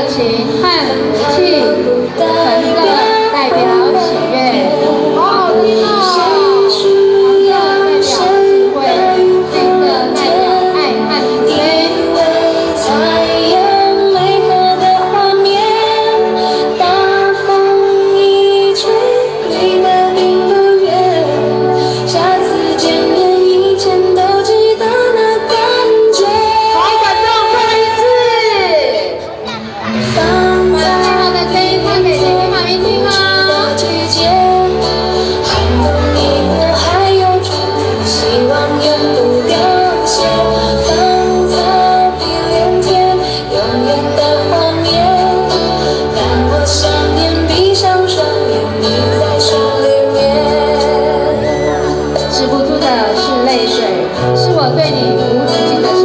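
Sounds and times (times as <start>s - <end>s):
musical accompaniment: 0.0s - 56.0s
woman singing: 0.0s - 56.0s
backing track with bass line: 29.2s - 56.0s.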